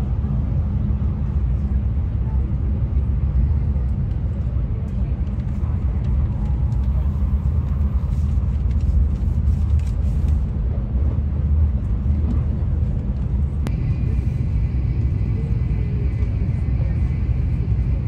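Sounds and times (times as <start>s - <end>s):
train running rumble: 0.0s - 18.0s
faint high whine: 13.7s - 18.0s.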